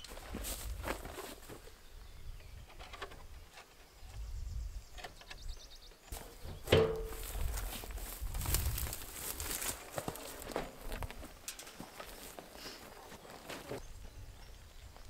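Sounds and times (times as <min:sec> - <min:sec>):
small knocks and rustles: 0:06.1 - 0:13.8.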